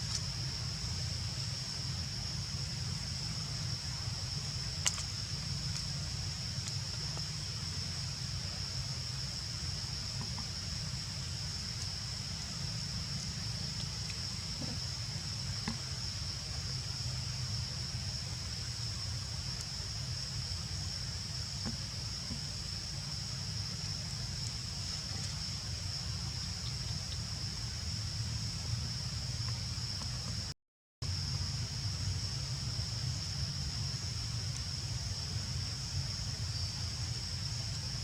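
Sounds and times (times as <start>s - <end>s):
faint clicks: 4.8s - 5.1s.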